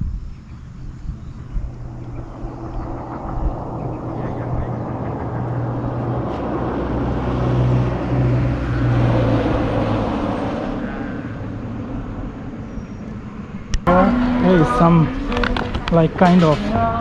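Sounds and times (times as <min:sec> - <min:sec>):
motorcycle engine running: 0:00.0 - 0:07.2, 0:12.0 - 0:17.0
wind and road rush: 0:00.0 - 0:17.0.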